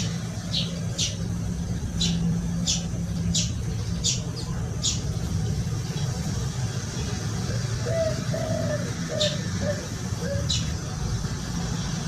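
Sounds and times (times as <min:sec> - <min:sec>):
small bird chirping: 0:00.0 - 0:06.1
steady low hum: 0:00.0 - 0:12.0.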